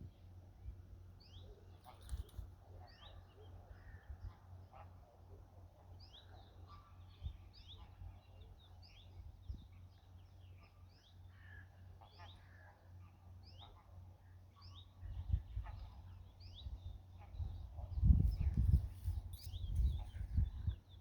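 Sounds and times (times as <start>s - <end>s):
birds chirping: 14.6s - 21.0s.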